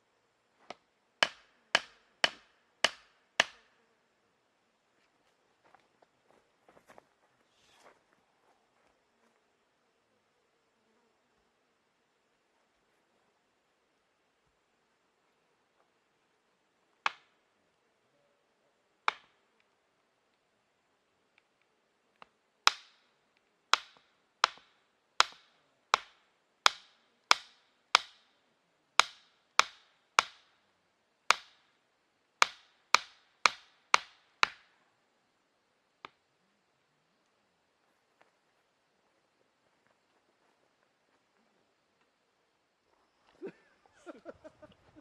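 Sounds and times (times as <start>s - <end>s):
sharp wooden knocks: 1.2s - 3.6s, 22.7s - 23.0s, 23.7s - 28.2s, 29.0s - 30.4s, 32.4s - 34.6s.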